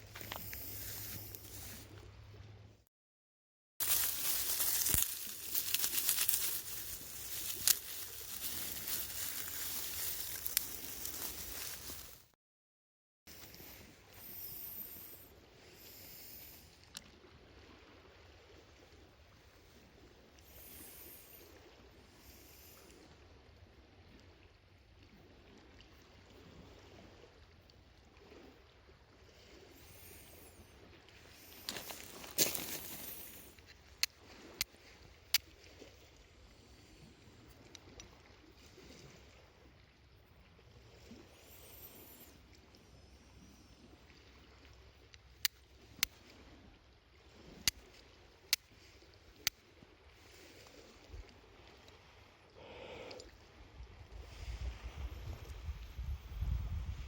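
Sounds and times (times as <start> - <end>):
sea and wind rumble: 53.4 - 57.0.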